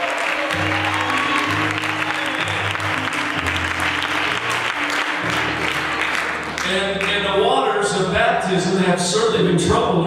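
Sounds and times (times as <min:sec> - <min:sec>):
congregation applauding: 0:00.0 - 0:07.8
instrumental music: 0:00.2 - 0:08.3.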